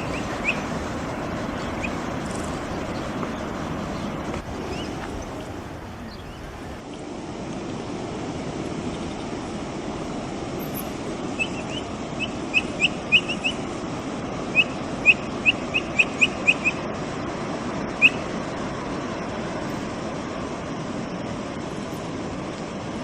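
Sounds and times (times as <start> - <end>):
capybara peeping: 0.0 - 0.7
steady rushing background noise: 0.0 - 23.0.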